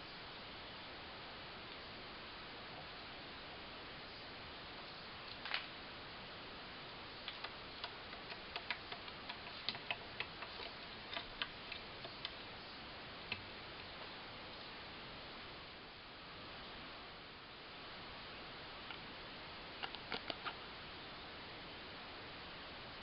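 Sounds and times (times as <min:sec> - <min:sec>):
steady hiss: 0:00.0 - 0:23.0
sharp clicks and taps: 0:07.2 - 0:12.4.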